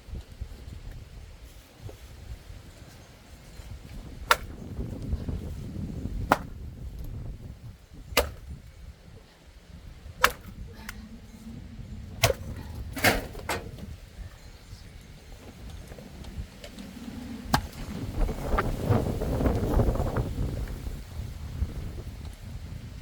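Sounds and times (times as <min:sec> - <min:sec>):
low rumble: 0:09.7 - 0:20.4.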